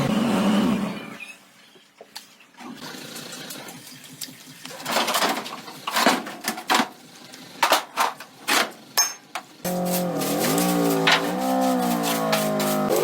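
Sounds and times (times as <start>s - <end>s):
short scraping clatters: 9.7s - 13.0s.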